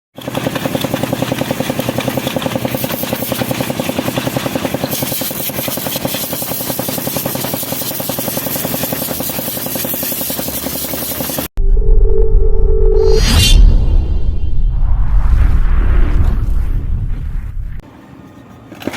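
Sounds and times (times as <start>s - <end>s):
diesel engine running: 0.2s - 4.9s.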